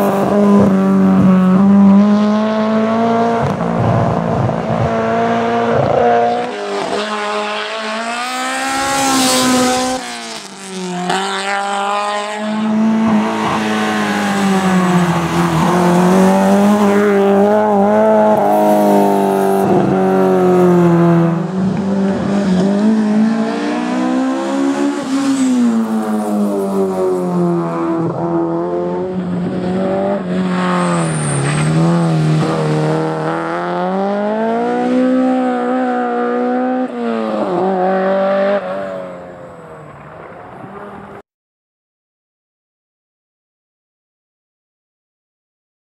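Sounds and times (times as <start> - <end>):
race car engine revving: 0.0 - 39.4
tyre squeal: 30.6 - 31.8.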